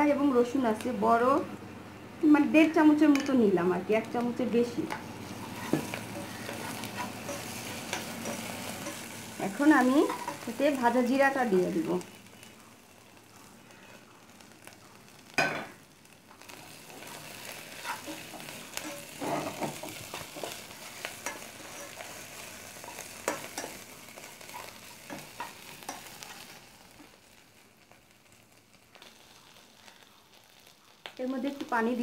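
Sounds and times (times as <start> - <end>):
paste sizzling in oil: 4.4 - 32.0
spoon scraping pan: 4.9 - 10.5, 16.9 - 26.4.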